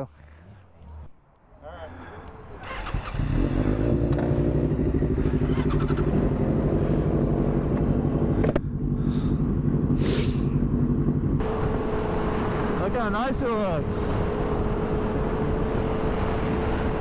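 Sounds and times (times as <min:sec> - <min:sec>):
motorcycle engine idling: 0:04.1 - 0:11.4.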